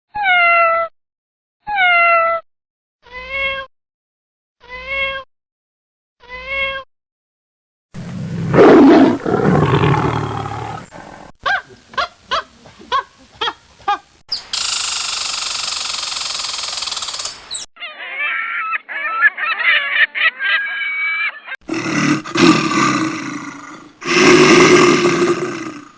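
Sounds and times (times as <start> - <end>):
deep rough animal roar: 8.2 - 11.3, 21.7 - 25.9
high chattering calls: 14.3 - 17.7.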